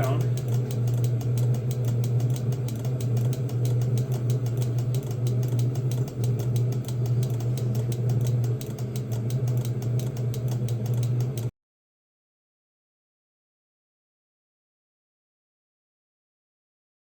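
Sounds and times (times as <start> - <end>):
diesel heater humming: 0.0 - 1.6.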